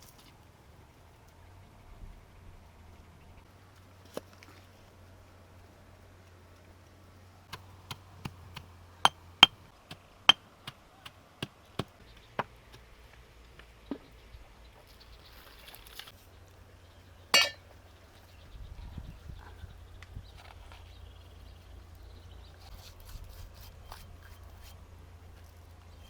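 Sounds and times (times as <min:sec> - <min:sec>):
rough clatter: 0:17.4 - 0:17.6.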